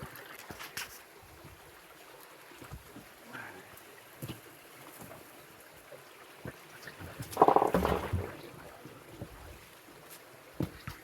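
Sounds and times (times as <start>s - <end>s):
creek water running: 0.0s - 11.0s.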